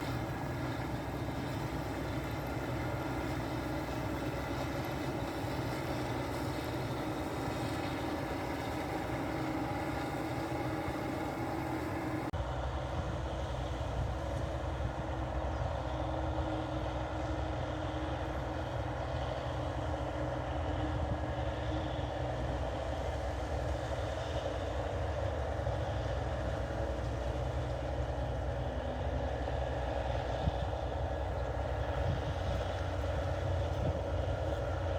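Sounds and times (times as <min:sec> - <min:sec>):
combine harvester droning: 0:00.0 - 0:34.9.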